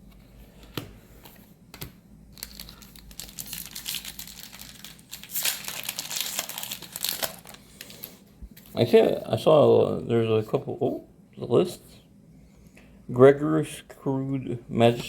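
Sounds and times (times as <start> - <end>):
foil wrapper tearing and crinkling: 2.4 - 8.1.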